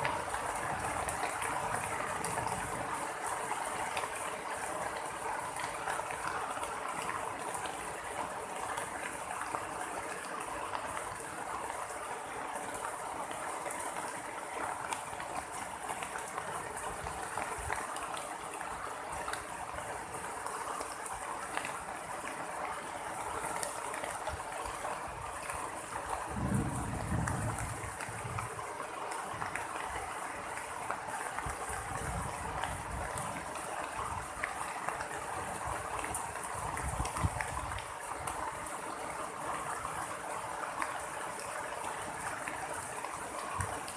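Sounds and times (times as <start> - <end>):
heavy rain pouring: 0.0 - 43.9
low thunder rumble: 26.2 - 28.7.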